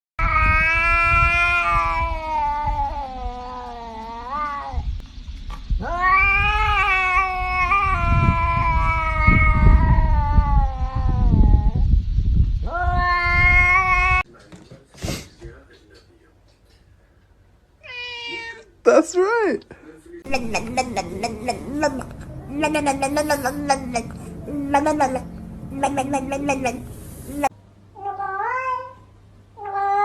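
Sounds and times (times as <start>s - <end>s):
cat yowling: 0.2s - 4.9s, 5.8s - 11.8s, 12.7s - 14.2s, 17.8s - 18.6s, 28.0s - 29.0s, 29.6s - 30.0s.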